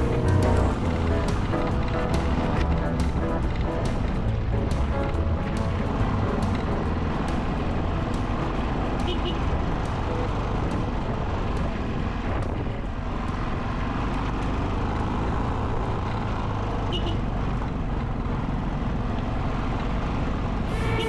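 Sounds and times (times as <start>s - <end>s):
wind noise: 0.0s - 14.1s
motorcycle engine running: 0.0s - 21.0s.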